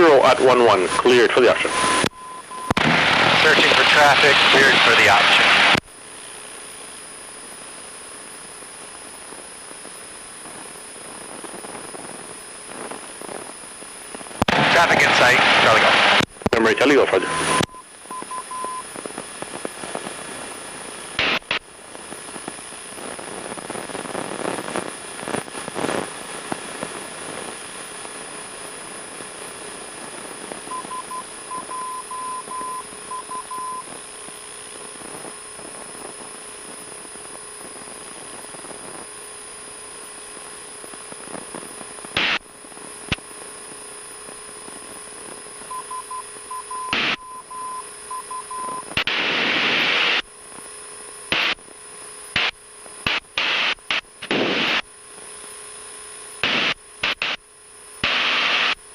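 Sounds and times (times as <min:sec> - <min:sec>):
radio static hiss: 0:00.0 - 0:58.9
short bursts of static: 0:00.0 - 0:58.9
morse code beeps: 0:00.8 - 0:02.8, 0:17.2 - 0:18.9, 0:30.7 - 0:33.9, 0:45.7 - 0:48.9.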